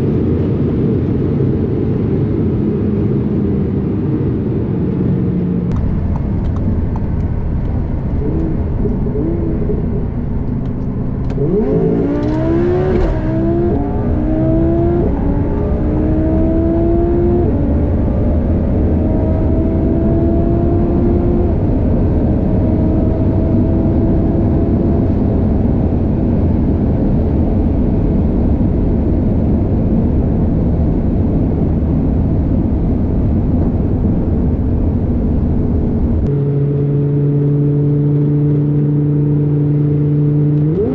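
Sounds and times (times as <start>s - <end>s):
wind noise: 0.0s - 36.4s
car engine accelerating through upshifts: 5.3s - 40.9s.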